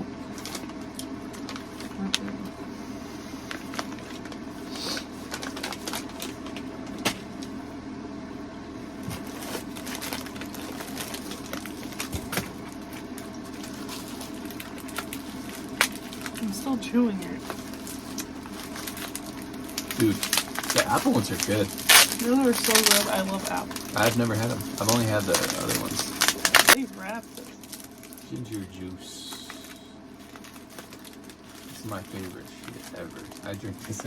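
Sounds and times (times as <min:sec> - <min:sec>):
low hum: 0:00.0 - 0:34.0
small clicks and crackles: 0:09.1 - 0:16.5, 0:17.4 - 0:26.8, 0:29.3 - 0:34.0.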